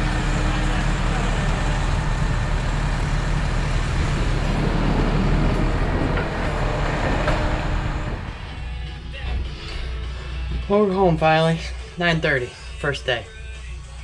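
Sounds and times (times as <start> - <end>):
vehicle engine and road noise: 0.0 - 10.7.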